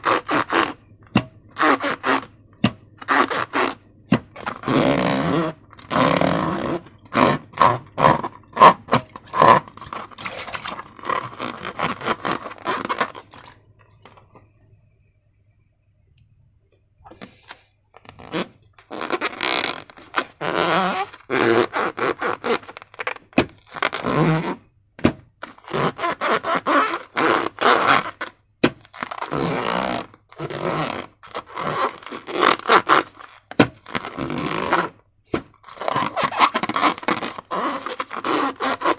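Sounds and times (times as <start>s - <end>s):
slime squelching: 0.0s - 14.2s
sticky scraping: 0.0s - 14.2s, 17.1s - 24.6s, 25.4s - 38.9s.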